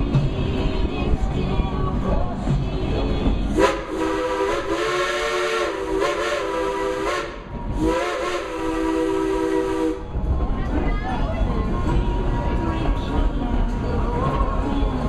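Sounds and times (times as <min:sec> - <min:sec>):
steam locomotive chime whistle: 0:03.6 - 0:10.1.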